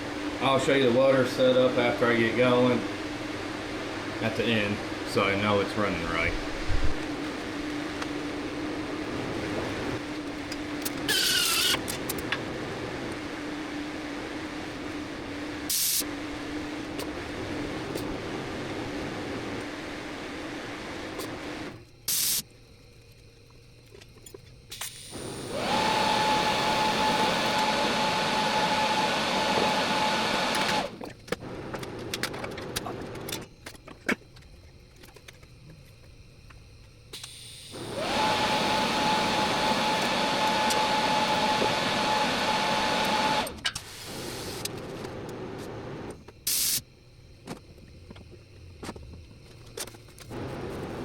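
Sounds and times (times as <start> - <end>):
welding arc hissing: 0.6 - 22.5, 24.7 - 31.6, 37.2 - 46.9.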